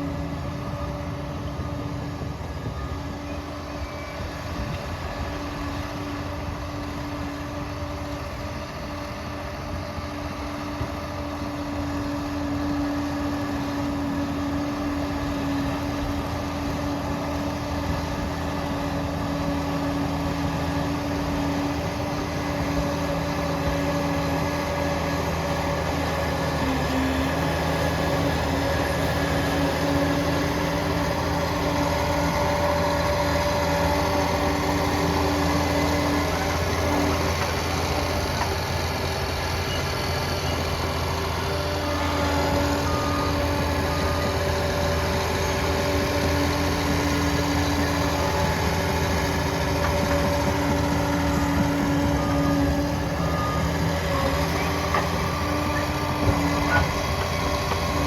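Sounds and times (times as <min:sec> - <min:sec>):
dozer diesel engine running: 0:00.0 - 0:58.0
rumble of tracks: 0:13.4 - 0:58.0.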